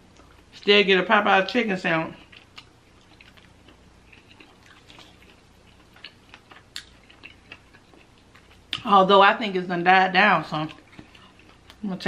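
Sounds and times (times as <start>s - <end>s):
chewing crispy fried chicken: 2.0s - 8.9s, 10.4s - 12.0s.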